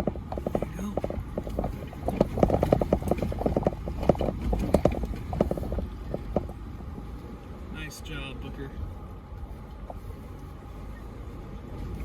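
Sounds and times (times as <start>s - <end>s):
rocks knocking under tyres: 0.0s - 7.1s
low engine rumble: 0.0s - 12.0s.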